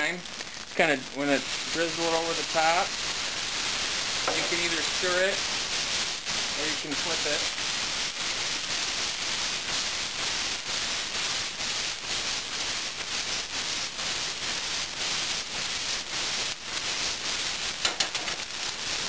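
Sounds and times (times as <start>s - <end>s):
rice sizzling in hot oil: 0.0s - 19.0s.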